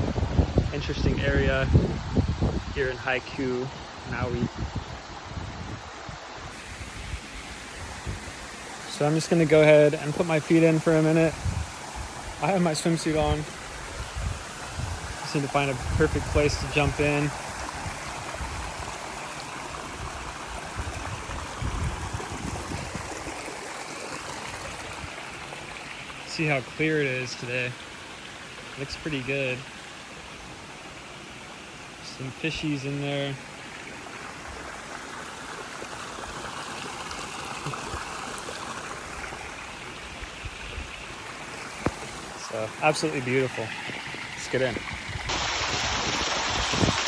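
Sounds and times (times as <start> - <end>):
waterfall and stream rushing: 0.0 - 47.0.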